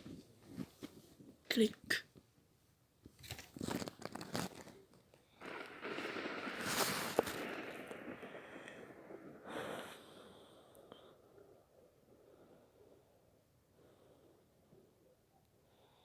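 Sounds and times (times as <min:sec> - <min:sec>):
rustling and crinkling handling: 0:00.0 - 0:01.5, 0:03.0 - 0:08.2.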